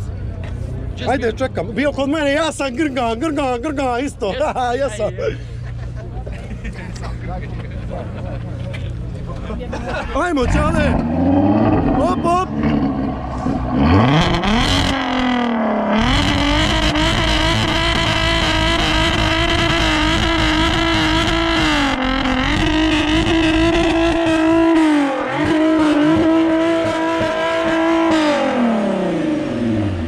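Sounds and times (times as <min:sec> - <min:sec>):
car engine revving: 0:10.2 - 0:30.0.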